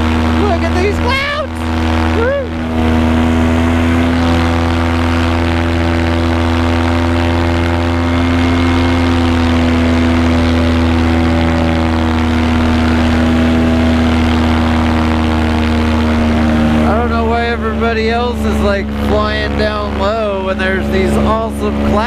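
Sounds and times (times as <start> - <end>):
paramotor engine drone: 0.0 - 22.0.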